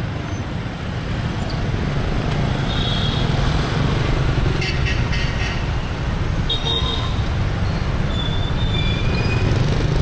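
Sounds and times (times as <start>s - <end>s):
motorbike engine and road rumble: 0.0s - 4.9s.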